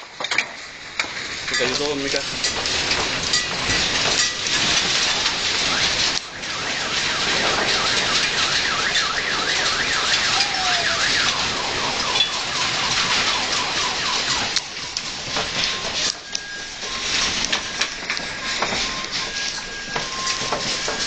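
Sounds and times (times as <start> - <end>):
house rattling in earthquake: 0.0 - 21.0
electronic alarm warbling: 6.4 - 21.0.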